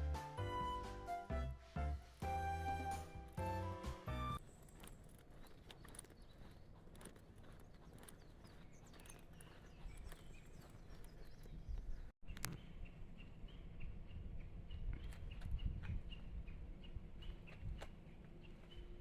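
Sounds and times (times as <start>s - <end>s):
footsteps on a trail: 2.2s - 12.2s
faint birdsong: 2.6s - 19.0s.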